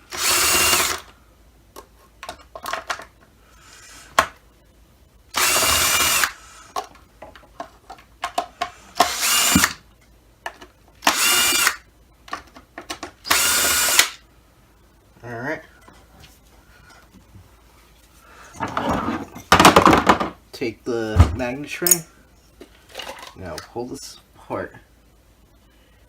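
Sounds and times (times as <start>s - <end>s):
power screwdriver bursts: 0.1s - 1.1s, 5.4s - 6.4s, 8.9s - 9.8s, 11.0s - 11.8s, 13.2s - 14.2s.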